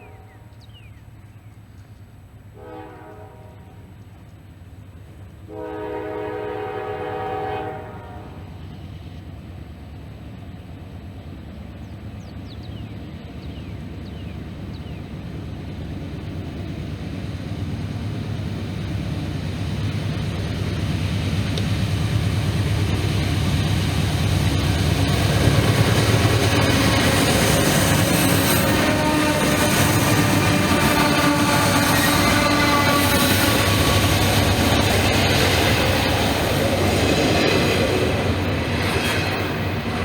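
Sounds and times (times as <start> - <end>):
train rumble: 0.0 - 40.0
locomotive horn chord: 2.6 - 3.9, 5.5 - 8.5, 28.6 - 34.2.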